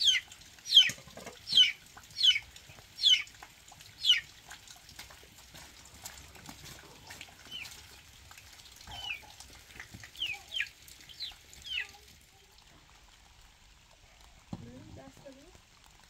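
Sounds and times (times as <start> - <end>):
bird peeping: 0.0 - 2.4, 3.0 - 3.3, 4.0 - 4.2, 8.9 - 9.3, 10.2 - 11.9.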